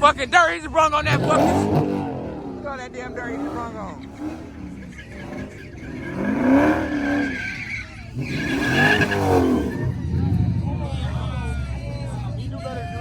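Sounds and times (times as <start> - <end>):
tyres squealing: 0.0 - 12.3
car engine revving: 0.0 - 13.0.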